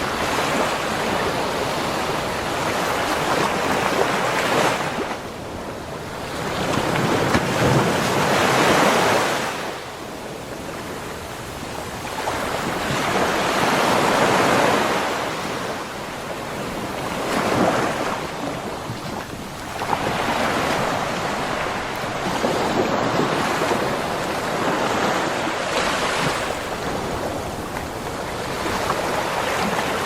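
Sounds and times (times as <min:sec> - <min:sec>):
ocean surf breaking: 0:00.0 - 0:30.0.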